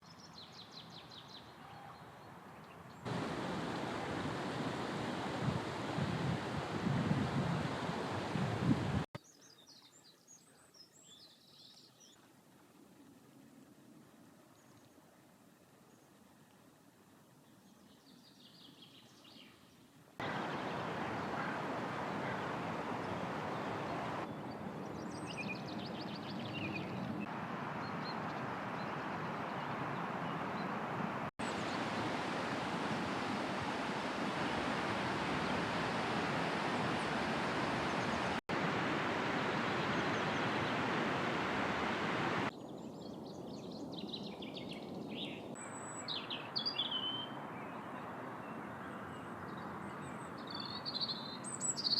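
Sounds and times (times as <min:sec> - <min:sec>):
rushing background noise: 0:03.1 - 0:06.8, 0:20.2 - 0:24.8, 0:26.9 - 0:42.5
rapid bird songs: 0:17.5 - 0:32.0, 0:39.3 - 0:51.9.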